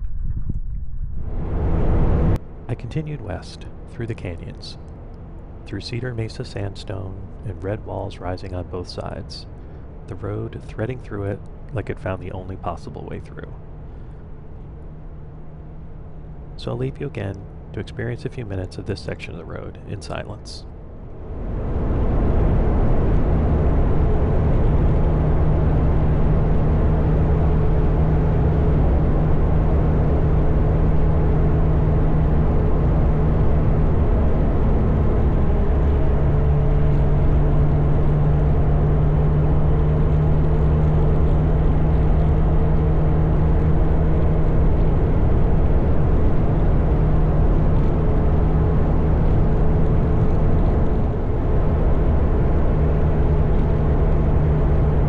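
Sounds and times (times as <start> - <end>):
wind noise: 0.0 - 3.6
road noise: 1.1 - 55.0
motorcycle engine cruising: 21.2 - 55.0.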